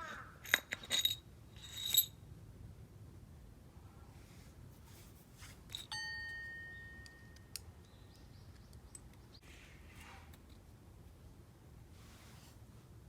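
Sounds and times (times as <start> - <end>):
clear ringing ding: 5.9 - 7.4.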